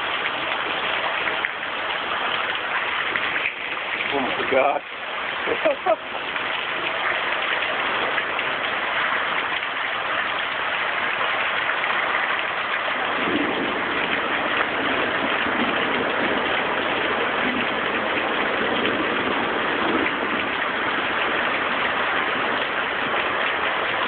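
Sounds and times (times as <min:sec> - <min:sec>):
deeper rush of rain: 0:00.0 - 0:24.0
heavy rain pouring: 0:00.0 - 0:24.0.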